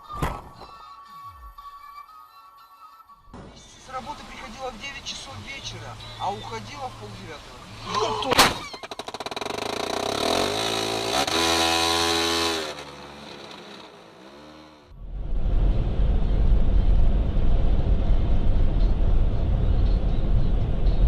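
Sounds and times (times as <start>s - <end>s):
low rumble of driving noise: 3.3s - 21.0s
vehicle engine revving: 9.2s - 21.0s.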